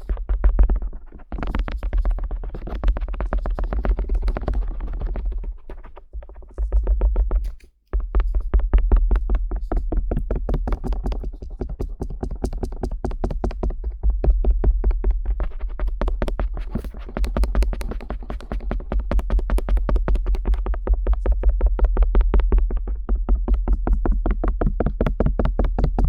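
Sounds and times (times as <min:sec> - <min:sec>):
earpick scratching and tapping: 0:00.0 - 0:26.0.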